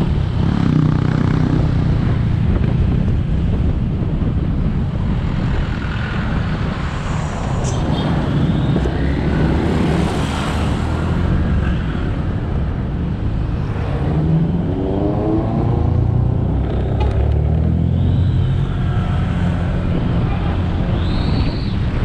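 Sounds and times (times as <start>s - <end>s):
wind and road noise: 0.0s - 22.0s
motorcycle engine rumbling: 11.2s - 22.0s.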